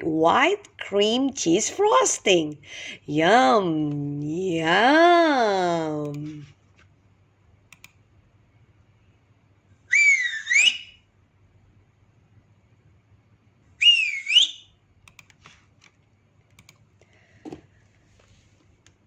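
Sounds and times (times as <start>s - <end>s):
person whistling: 9.9s - 11.0s, 13.8s - 14.6s.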